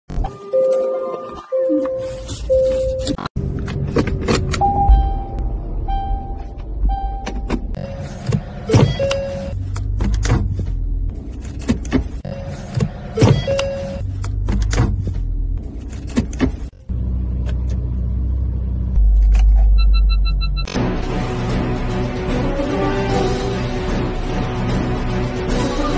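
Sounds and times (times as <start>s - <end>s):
short beeps: 4.6s - 8.0s, 19.7s - 20.7s
gear selector clicks and clunks: 6.5s - 10.6s, 11.4s - 15.1s.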